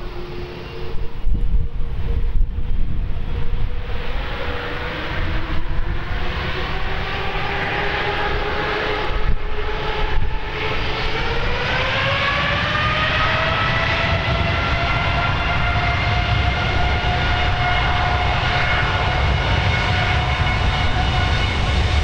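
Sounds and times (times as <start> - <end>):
jet engines whining: 0.0 - 22.0
wind buffeting the microphone: 0.0 - 22.0.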